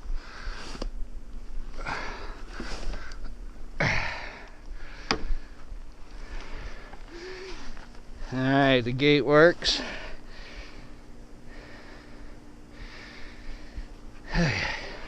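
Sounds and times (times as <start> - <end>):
person sniffing and breathing heavily: 3.8 - 7.8.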